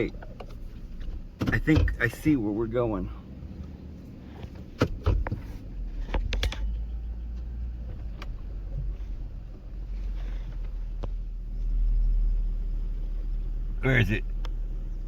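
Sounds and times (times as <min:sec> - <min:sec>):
rattles and knocks over bumps: 0:00.0 - 0:02.4, 0:04.3 - 0:11.2
car engine and tyres rumbling: 0:00.0 - 0:15.0.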